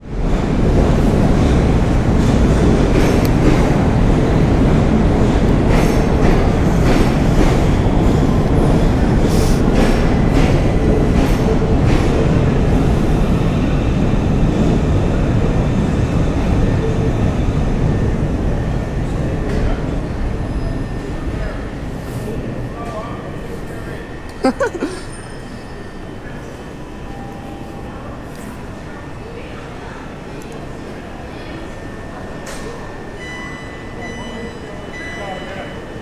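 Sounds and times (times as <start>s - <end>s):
train rumbling on rails: 0.0s - 24.3s.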